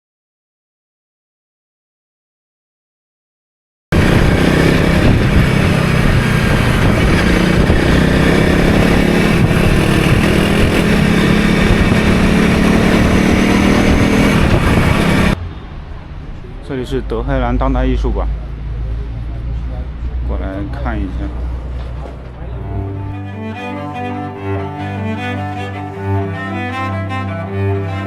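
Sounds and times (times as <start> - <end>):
motorcycle engine running: 3.9 - 15.4
wind noise: 3.9 - 15.4.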